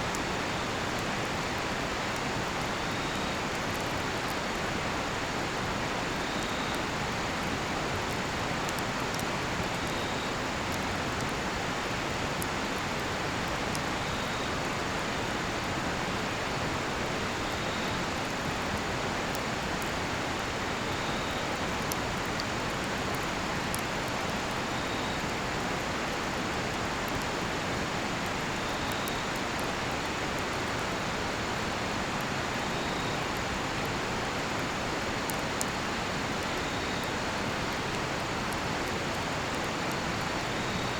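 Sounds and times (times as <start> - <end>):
cricket chirping: 40.2 - 40.9.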